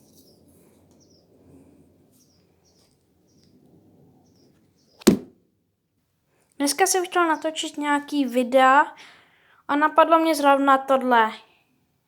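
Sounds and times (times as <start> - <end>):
sharp loud knock: 5.0 - 5.3.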